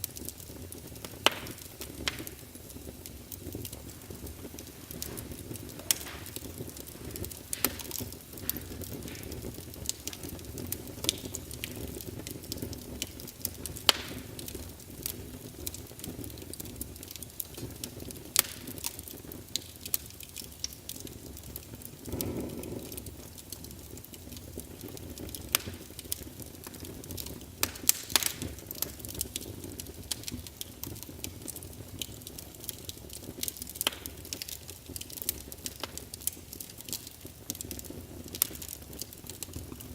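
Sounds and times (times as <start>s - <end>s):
whoosh of flame: 0.0s - 30.8s
fire flame rumble: 0.0s - 39.9s
logs crackling and popping: 0.0s - 39.9s.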